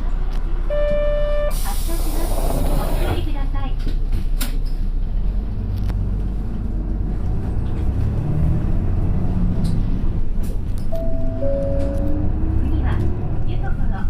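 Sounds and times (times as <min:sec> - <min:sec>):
bus engine and road rumble: 0:00.0 - 0:14.0
sharp clicks in bus cabin: 0:03.6 - 0:04.9, 0:09.5 - 0:12.2.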